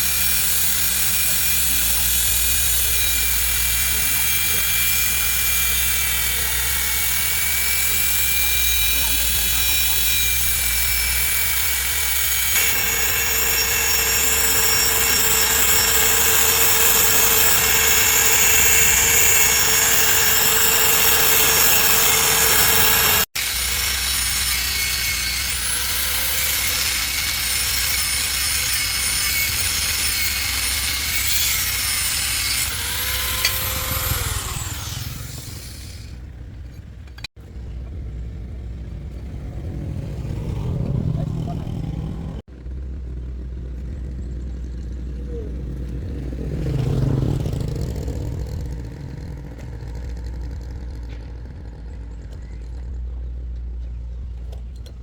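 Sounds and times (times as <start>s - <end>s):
power tool grinding: 0.0s - 37.3s, 46.2s - 52.7s.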